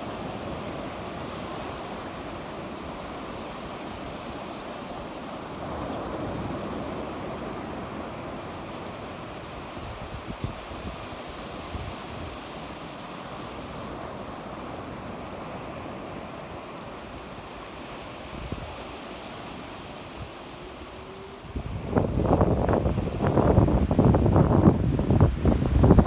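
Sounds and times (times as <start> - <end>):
sea waves washing onto shore: 0.0 - 26.0
wind gusts on microphone: 0.0 - 26.0.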